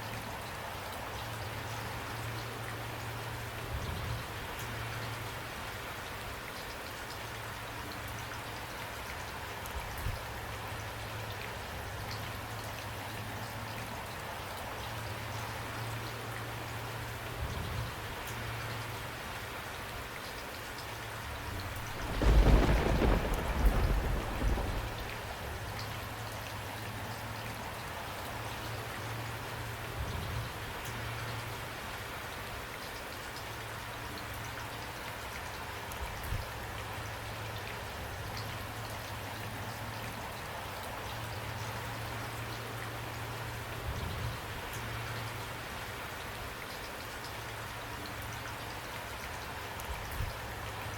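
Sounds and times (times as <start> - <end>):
rain pattering: 0.0 - 50.9
thunder rumble: 21.3 - 26.2.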